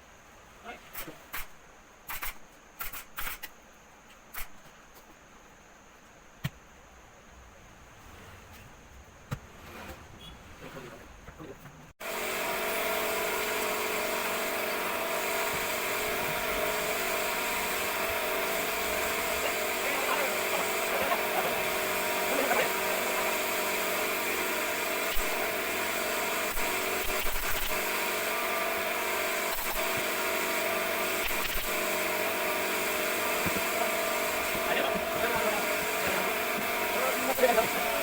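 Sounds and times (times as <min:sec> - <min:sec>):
steady machine hum: 0:12.0 - 0:38.0.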